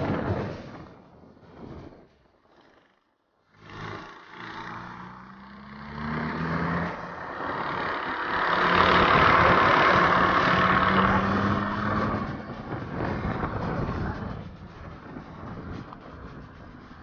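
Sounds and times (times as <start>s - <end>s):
car engine and road noise: 3.4s - 17.0s.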